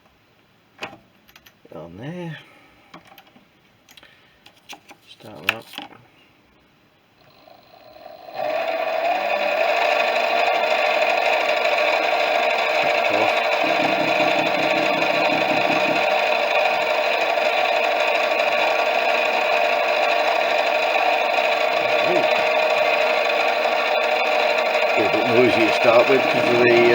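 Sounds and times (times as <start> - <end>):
metal lathe cutting: 11.4 - 16.5, 24.4 - 26.9
pulsing low rattle: 12.8 - 16.2.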